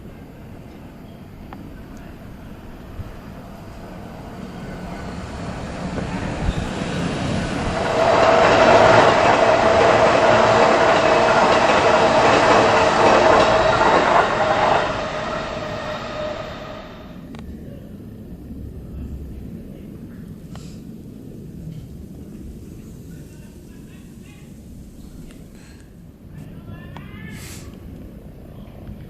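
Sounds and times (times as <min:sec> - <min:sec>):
electric train passing: 0:00.0 - 0:17.5
steady high tone: 0:06.5 - 0:17.3.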